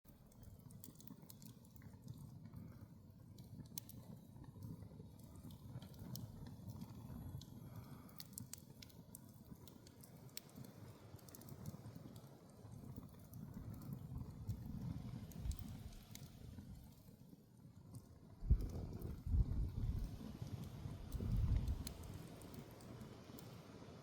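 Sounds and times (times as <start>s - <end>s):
campfire crackling and popping: 0.1s - 24.0s.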